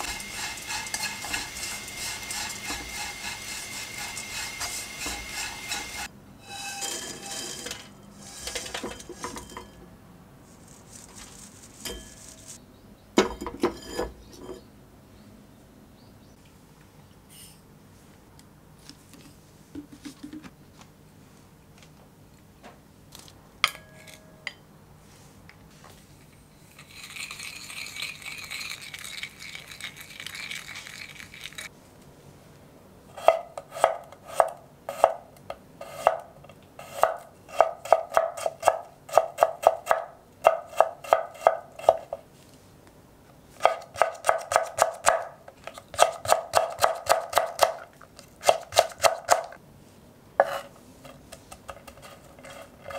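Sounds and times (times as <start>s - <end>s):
soft scraping: 0.1s - 9.8s, 10.4s - 12.6s.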